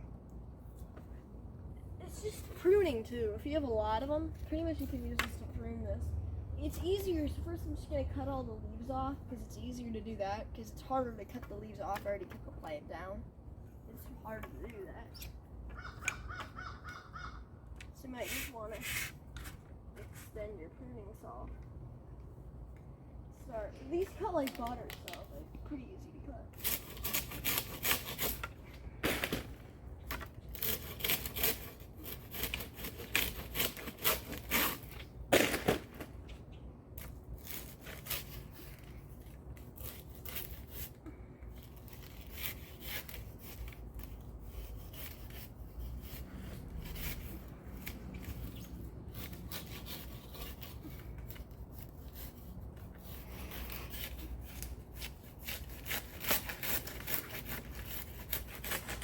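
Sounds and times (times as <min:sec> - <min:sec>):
pruning saw rasping through stalks: 0:26.5 - 0:29.6, 0:30.2 - 0:35.9, 0:37.0 - 0:59.0.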